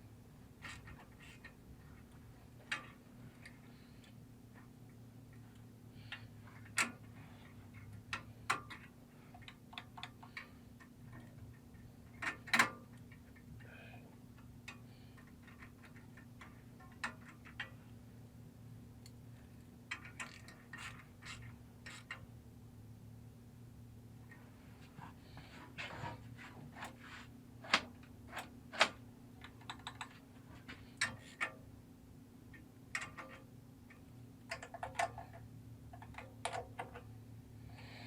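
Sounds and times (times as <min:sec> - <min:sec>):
steady low hum: 0:00.0 - 0:38.0
tools clicking and tapping: 0:07.7 - 0:13.8, 0:14.4 - 0:17.9, 0:27.6 - 0:31.6, 0:32.5 - 0:37.1.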